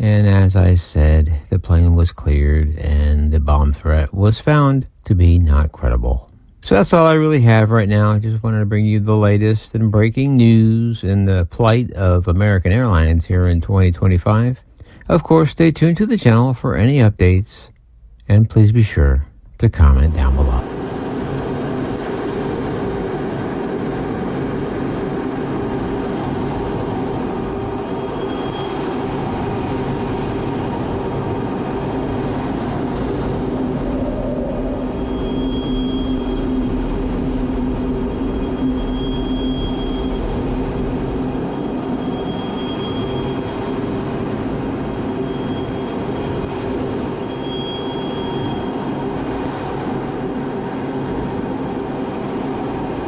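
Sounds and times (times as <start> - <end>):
faint high tones: 19.8 - 53.0.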